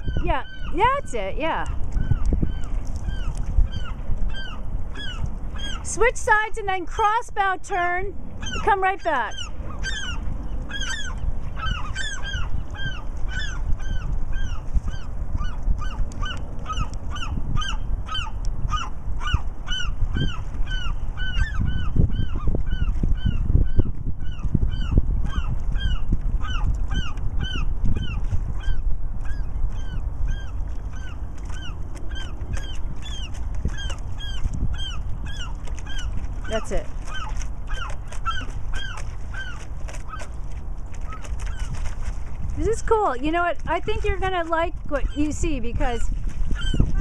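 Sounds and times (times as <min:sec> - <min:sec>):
bird calling: 0:00.0 - 0:07.2, 0:08.4 - 0:47.0.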